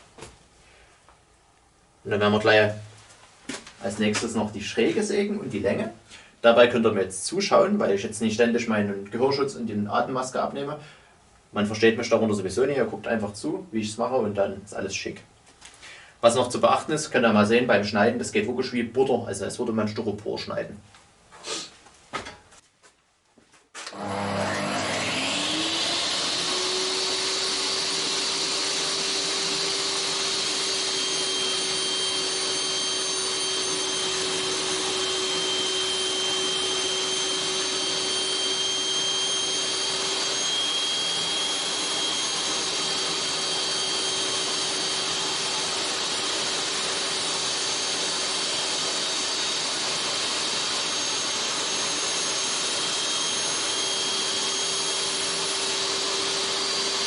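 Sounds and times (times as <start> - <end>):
electric power saw cutting board: 23.8 - 57.0.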